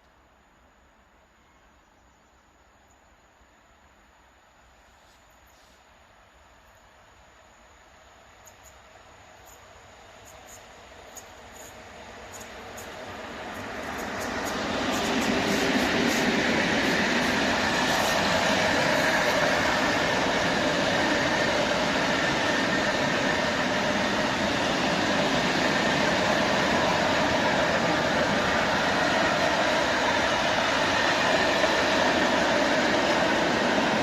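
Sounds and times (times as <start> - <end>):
train wheels rumbling on rail: 8.4 - 34.0.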